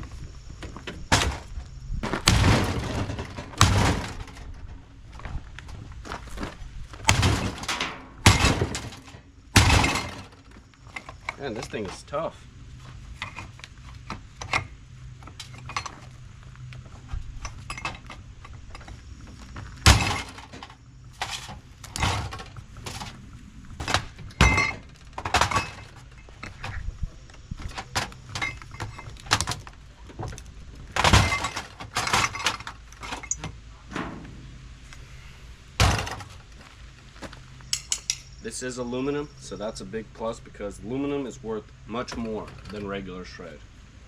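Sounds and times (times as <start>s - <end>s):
hand tools clanking on metal: 7.1s - 12.2s, 17.4s - 19.0s, 23.9s - 26.8s, 27.6s - 30.3s, 31.0s - 34.2s, 37.7s - 38.4s.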